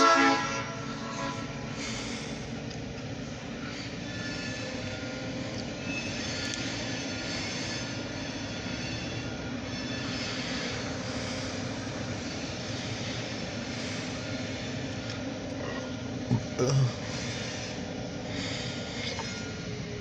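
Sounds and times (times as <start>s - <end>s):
freight train rumbling past: 0.0s - 15.4s.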